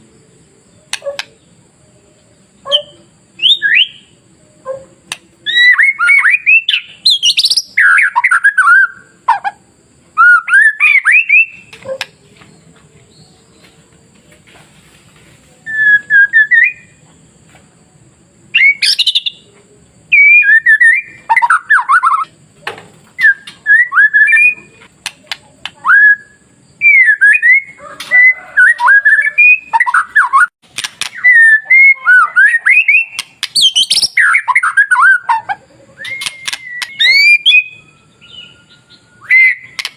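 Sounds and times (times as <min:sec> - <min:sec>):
bird singing whistled phrases: 0:02.6 - 0:04.2, 0:05.4 - 0:09.2, 0:10.2 - 0:12.1, 0:15.6 - 0:17.0, 0:18.5 - 0:19.5, 0:20.1 - 0:22.3, 0:23.2 - 0:24.8, 0:25.8 - 0:39.9.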